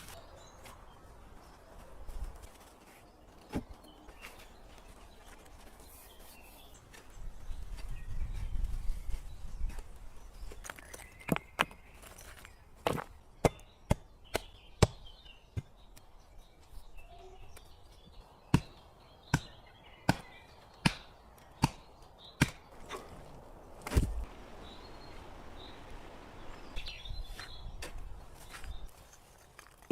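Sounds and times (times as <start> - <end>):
birds chirping faintly: 0.0 - 29.9
sharp chopping strikes: 19.3 - 23.0.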